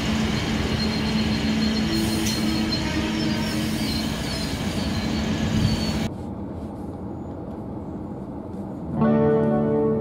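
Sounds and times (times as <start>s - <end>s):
diesel railcar engine drone: 0.0s - 10.0s
faint wheel squeal: 0.7s - 6.1s.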